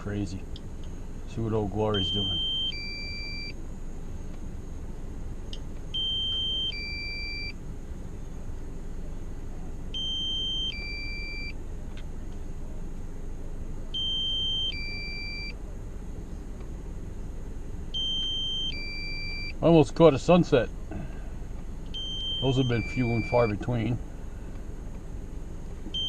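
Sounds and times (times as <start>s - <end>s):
steady low rumble: 0.0s - 26.0s
two-note electronic warning alert: 22.0s - 23.7s.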